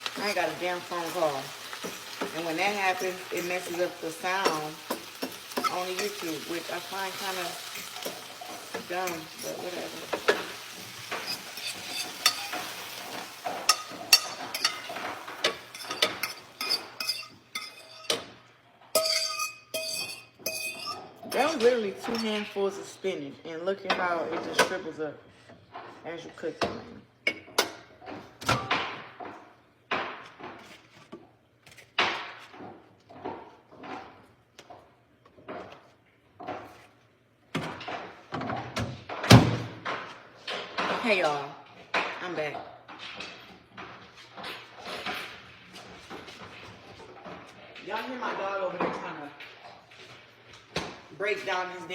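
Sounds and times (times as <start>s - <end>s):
spinach sizzling in a frying pan: 0.0s - 18.1s
utensil clicking and scraping pan: 0.0s - 18.3s, 19.0s - 22.5s
kitchen knocks and bangs: 26.6s - 30.6s, 37.6s - 41.2s.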